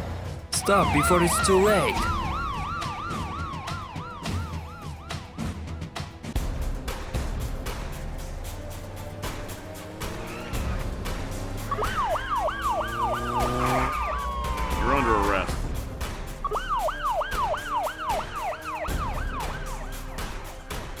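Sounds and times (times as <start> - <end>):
background music: 0.0 - 21.0
cartoon siren yelping: 0.6 - 5.0, 11.7 - 15.6, 16.5 - 19.9.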